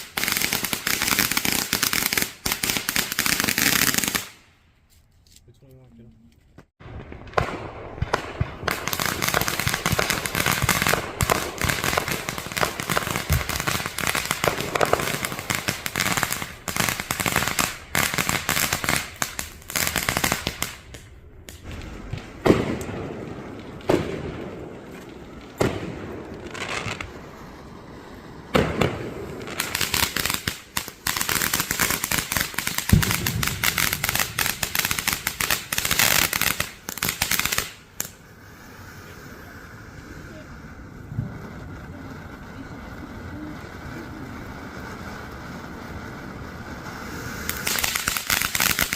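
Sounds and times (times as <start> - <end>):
firework bangs: 0.0 - 4.6, 6.6 - 48.9
fireworks crackling and popping: 0.0 - 48.9.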